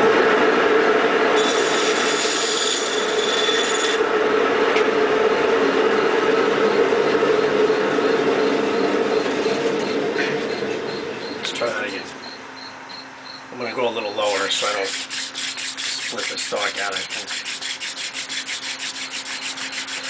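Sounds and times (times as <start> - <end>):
high hissing squeal: 1.4 - 4.0, 14.2 - 20.0
spindle rasping on wooden board: 14.2 - 20.0.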